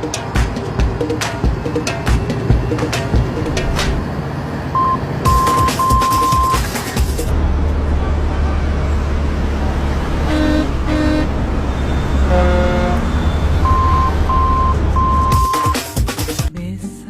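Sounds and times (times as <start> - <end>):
engine and road rumble: 0.0 - 16.5
short high beeps: 4.8 - 6.6, 13.6 - 15.8
vehicle horns: 7.8 - 15.8.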